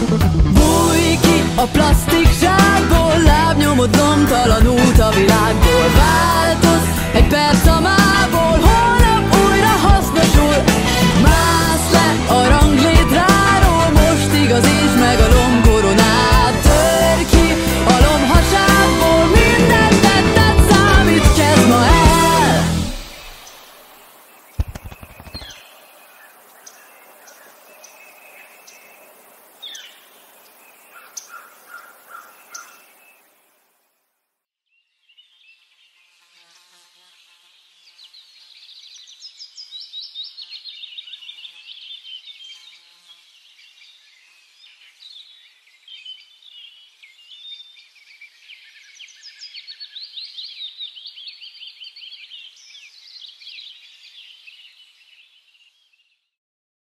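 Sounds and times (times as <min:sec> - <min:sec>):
faint hiss: 0:22.6 - 0:30.8
small birds chirping and twittering: 0:22.9 - 0:56.4.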